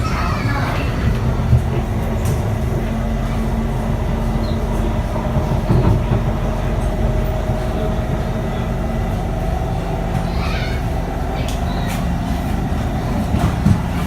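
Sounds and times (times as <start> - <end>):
train interior rumble: 0.0 - 14.0.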